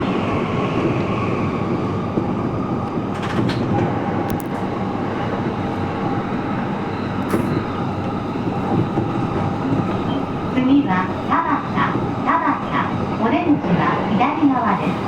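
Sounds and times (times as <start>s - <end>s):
rumble of train wheels on rail: 0.0s - 15.0s.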